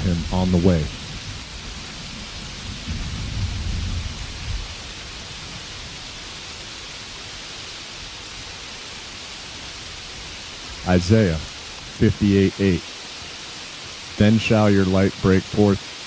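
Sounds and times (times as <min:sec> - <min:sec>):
low rumble of thunder: 0:00.0 - 0:06.5
steady rainfall: 0:00.0 - 0:16.0.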